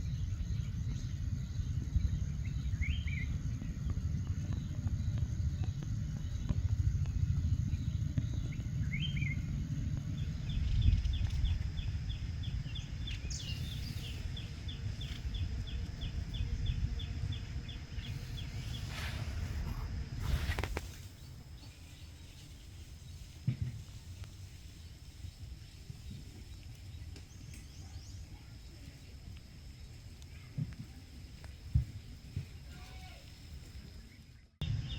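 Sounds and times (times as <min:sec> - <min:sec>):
wind rumble on microphone: 0:00.0 - 0:34.9
brief rustles: 0:18.6 - 0:21.2.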